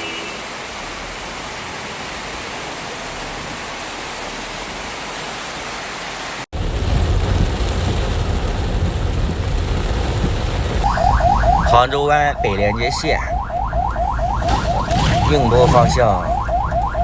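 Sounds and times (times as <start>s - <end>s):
deep rumble under downpour: 0.0s - 17.0s
heavy rain hissing: 14.3s - 16.4s.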